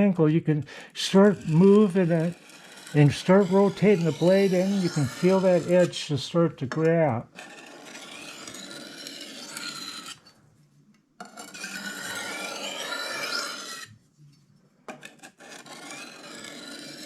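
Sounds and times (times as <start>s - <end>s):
knife scraping on sharpening stone: 1.2s - 6.0s, 7.3s - 10.3s, 11.2s - 13.9s, 15.0s - 17.0s.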